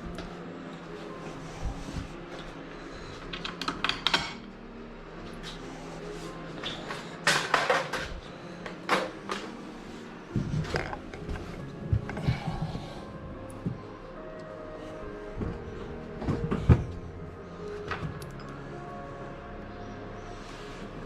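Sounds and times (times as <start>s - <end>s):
metal hardware clicks and clatter: 3.3s - 4.5s, 6.6s - 9.4s.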